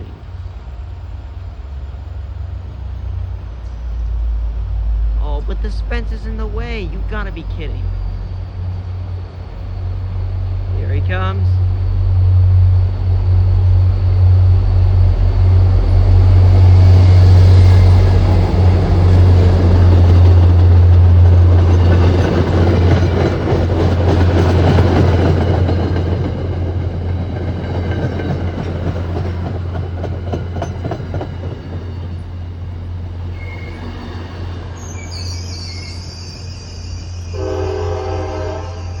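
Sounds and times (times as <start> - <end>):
diesel locomotive engine drone: 0.0 - 39.0
train wheels clattering on rails: 14.7 - 34.8
train horn: 37.3 - 39.0.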